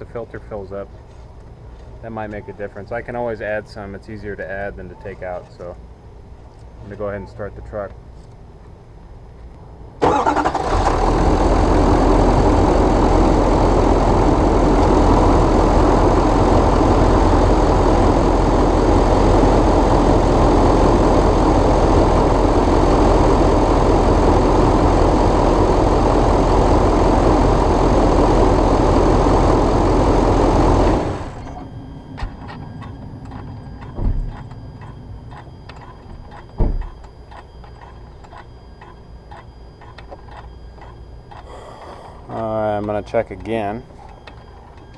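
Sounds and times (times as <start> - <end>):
diesel engine idling: 10.0 - 35.4.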